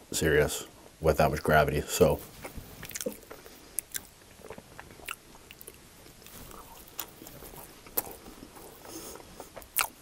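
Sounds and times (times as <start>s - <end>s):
soft chewing: 2.2s - 10.0s.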